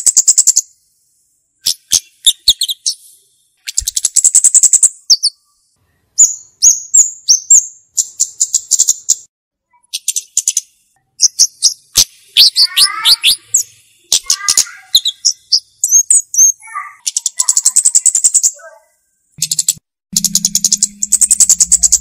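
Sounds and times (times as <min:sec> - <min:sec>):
bird high ticking trills: 0:11.2 - 0:18.7, 0:19.4 - 0:22.0
bird sharp down-slurred notes: 0:19.4 - 0:22.0.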